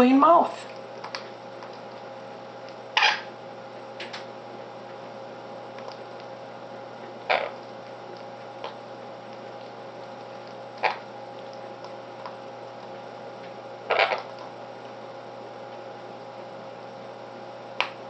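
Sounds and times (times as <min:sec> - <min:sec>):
low background hum: 0:00.0 - 0:18.0
conure calls: 0:03.0 - 0:03.3, 0:13.9 - 0:14.4.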